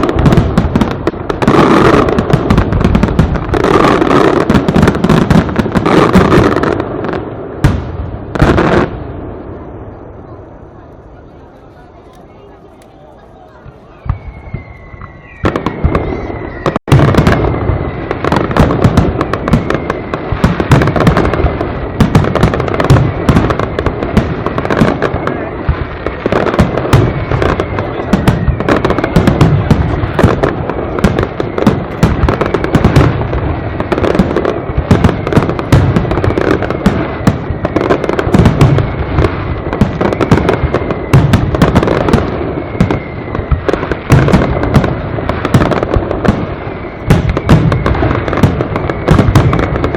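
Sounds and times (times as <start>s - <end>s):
fireworks bursts and crackling bangs: 0.0s - 49.9s
firework whistle sliding down: 13.7s - 18.6s, 42.1s - 43.6s, 46.7s - 49.9s.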